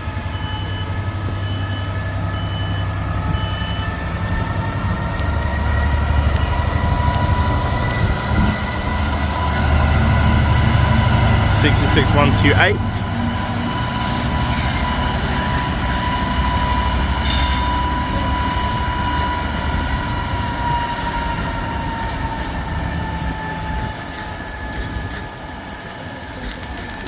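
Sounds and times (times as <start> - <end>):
diesel locomotive engine working hard: 0.0 - 27.0
high-pitched squeal: 0.0 - 27.0.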